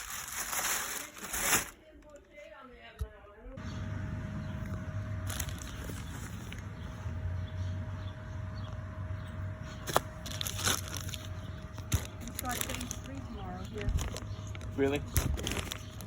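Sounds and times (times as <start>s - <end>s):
objects crinkling and clicking: 0.0s - 2.4s, 5.3s - 6.7s, 9.8s - 16.0s
steady low hum: 3.4s - 16.0s.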